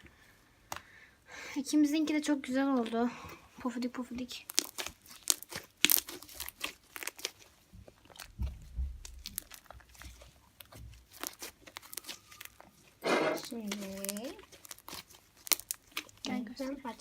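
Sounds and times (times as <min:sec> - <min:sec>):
slime crackling and popping: 0:03.9 - 0:17.0
soft low thumps: 0:07.8 - 0:10.0.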